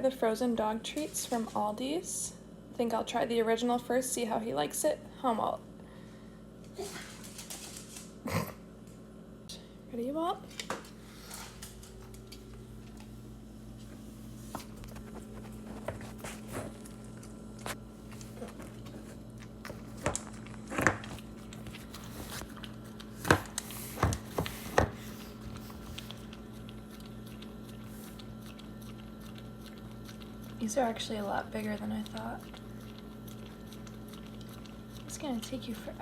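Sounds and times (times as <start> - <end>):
steady low hum: 0.0 - 36.0
dog licking and gnawing treat: 14.6 - 36.0.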